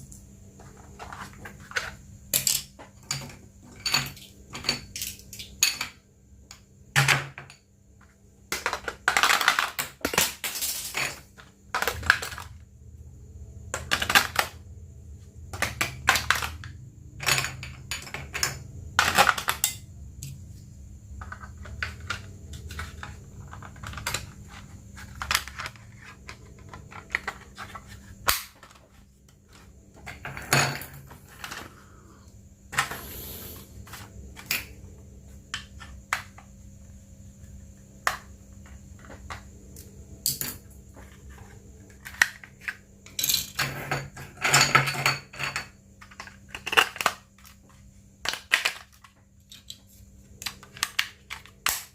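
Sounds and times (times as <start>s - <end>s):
faint steady hum: 0.0s - 51.9s
plastic parts and packaging handled: 21.2s - 30.3s, 46.0s - 51.9s.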